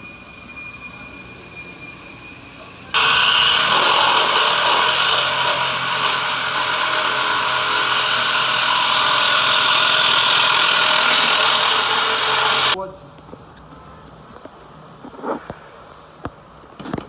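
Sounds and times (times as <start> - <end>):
power tool whirring: 2.9 - 12.8.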